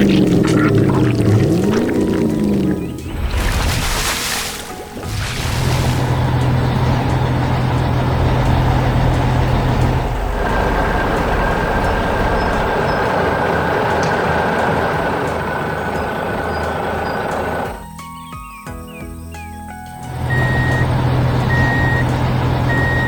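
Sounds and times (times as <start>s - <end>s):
low hum: 0.0s - 17.8s
heavy vehicle engine running: 4.8s - 17.8s, 20.0s - 23.0s
high whine: 5.0s - 17.8s.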